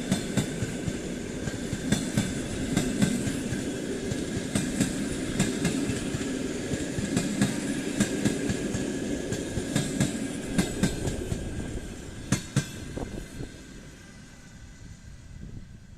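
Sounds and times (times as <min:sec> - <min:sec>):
train wheels clacking over rail joints: 0:00.0 - 0:11.6, 0:12.3 - 0:13.1
train rumble: 0:00.0 - 0:15.9.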